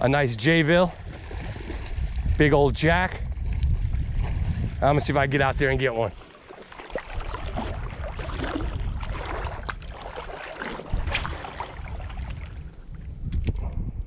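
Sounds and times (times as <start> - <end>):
wind buffeting microphone: 0.0 - 14.0
water sloshing around wading legs: 1.0 - 2.1, 6.0 - 13.1
sharp little splashes: 6.1 - 12.9.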